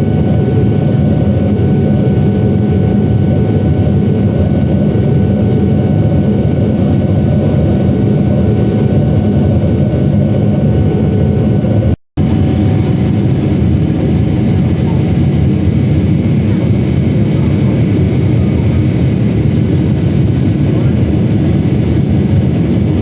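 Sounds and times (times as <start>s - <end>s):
jet engine and airflow noise: 0.0s - 23.0s
faint steady whine: 12.2s - 23.0s.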